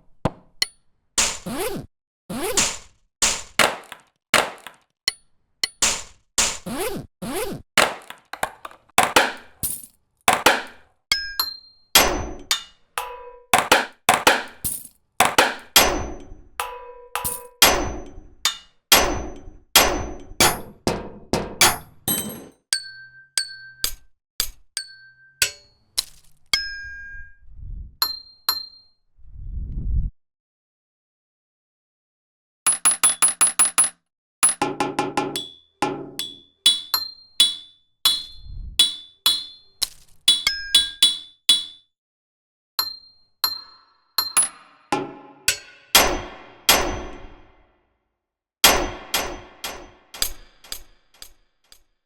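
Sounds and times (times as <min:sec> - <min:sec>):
metallic percussion hits: 0:07.8 - 0:11.3, 0:12.0 - 0:22.5, 0:43.6 - 0:47.6, 0:48.6 - 0:51.8.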